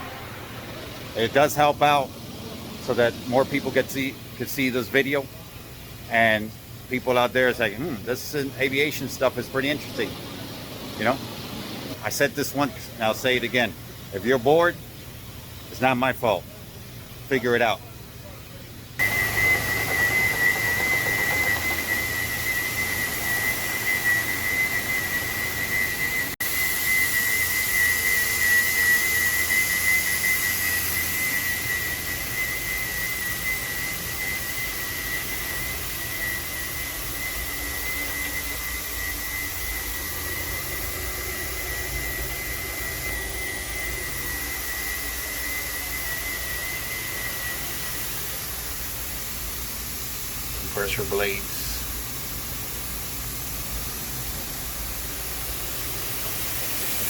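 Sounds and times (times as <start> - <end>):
low hum: 0.0 - 4.4
high-pitched whine: 0.0 - 57.0
hiss: 19.0 - 57.0.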